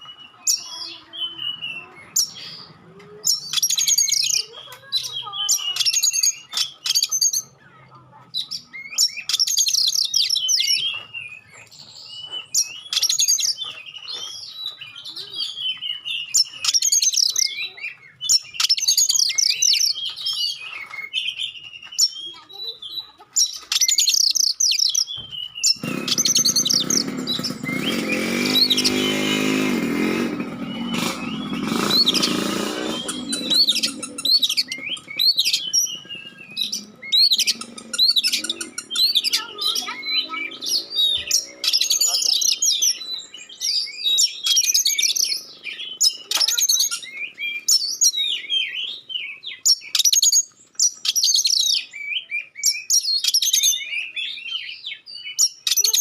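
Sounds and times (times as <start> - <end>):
motor engine passing: 0.0 - 8.8, 25.6 - 48.8
bird singing: 0.0 - 56.0.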